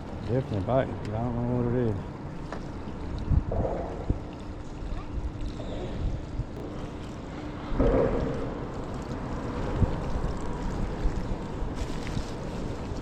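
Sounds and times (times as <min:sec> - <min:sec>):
steady low hum: 0:00.0 - 0:13.0
waves lapping at hull: 0:00.0 - 0:13.0
wind on microphone: 0:03.1 - 0:06.8.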